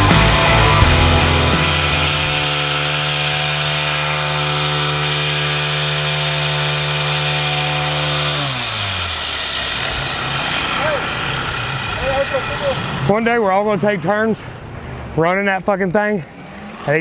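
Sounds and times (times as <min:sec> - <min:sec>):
music: 0:00.0 - 0:02.6
small gasoline engine running: 0:00.0 - 0:14.8.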